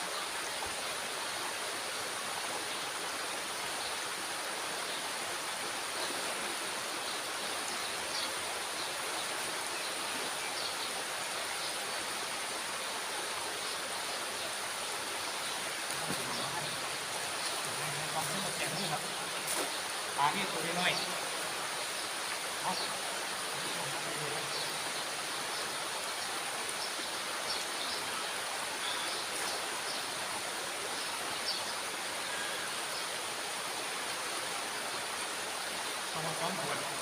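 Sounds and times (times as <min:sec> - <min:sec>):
water rushing through dam gate: 0:11.0 - 0:37.0.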